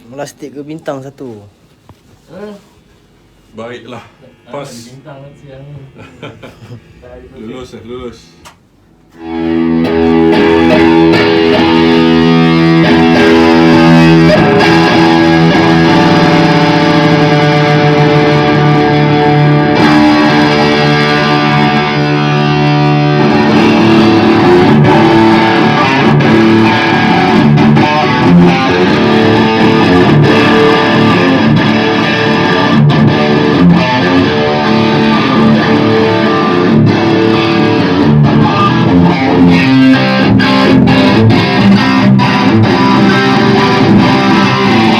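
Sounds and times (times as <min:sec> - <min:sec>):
electric guitar playing: 0:09.1 - 0:44.9.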